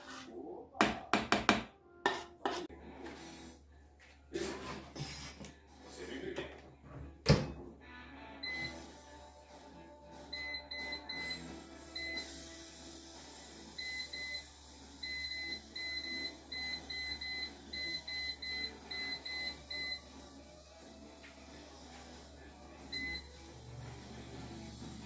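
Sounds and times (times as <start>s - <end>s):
appliance control panel beeps: 8.4s - 8.8s, 10.4s - 11.4s, 15.0s - 20.0s, 22.9s - 23.3s.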